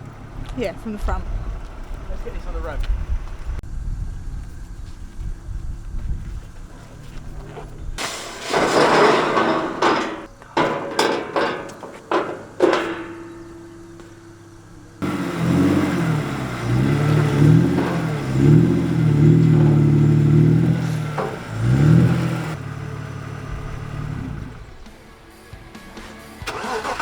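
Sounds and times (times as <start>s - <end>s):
car engine revving: 15.0s - 24.9s.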